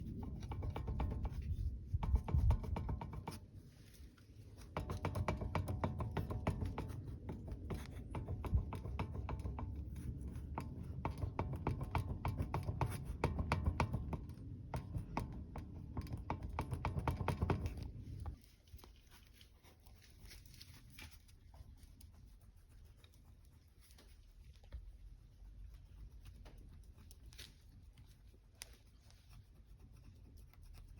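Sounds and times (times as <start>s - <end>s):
sharp knocks and rattles: 0.0s - 18.9s.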